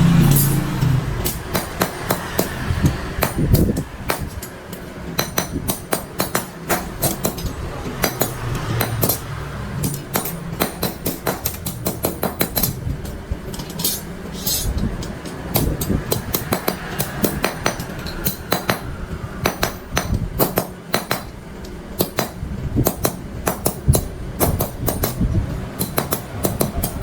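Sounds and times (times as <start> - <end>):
hammer striking metal: 0.0 - 25.2, 25.8 - 27.0.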